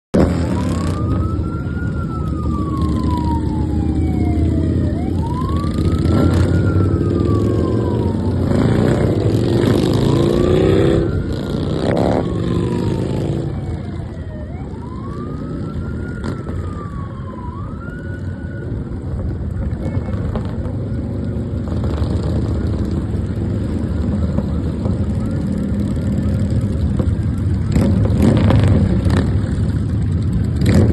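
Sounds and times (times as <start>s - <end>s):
motorcycle engines revving: 0.1s - 30.9s
motorcycle engines rumbling: 0.1s - 30.9s
siren wailing: 0.2s - 30.8s.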